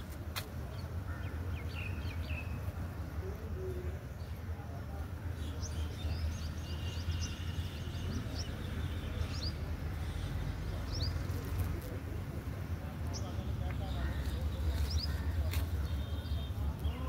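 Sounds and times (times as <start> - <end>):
small birds chirping: 5.3 - 17.0.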